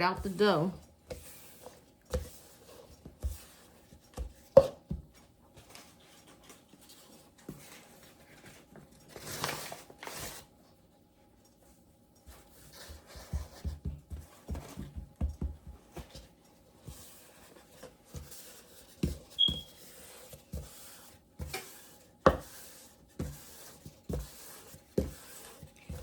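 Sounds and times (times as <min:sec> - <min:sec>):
high squeak: 0:19.4 - 0:19.8.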